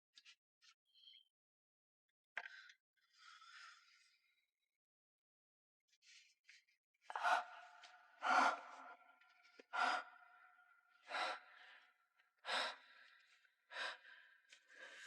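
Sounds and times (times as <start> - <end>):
person breathing heavily: 7.1 - 9.0, 11.0 - 15.0.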